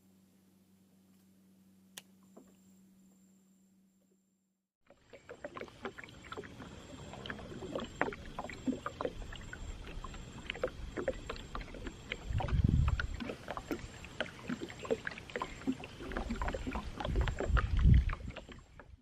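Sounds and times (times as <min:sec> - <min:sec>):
water lapping against boat hull: 0:04.8 - 0:19.0.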